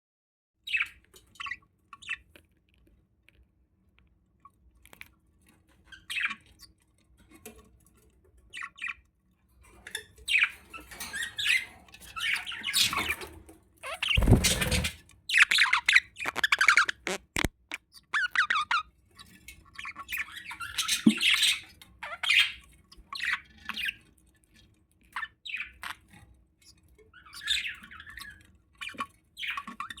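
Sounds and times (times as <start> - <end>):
budgies chirping and squawking: 10.2 - 17.3, 17.9 - 24.1, 25.1 - 30.0.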